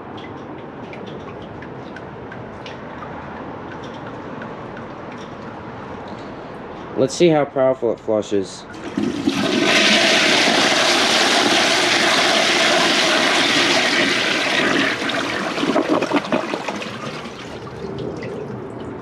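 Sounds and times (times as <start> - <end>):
toilet flushing: 8.7 - 19.0.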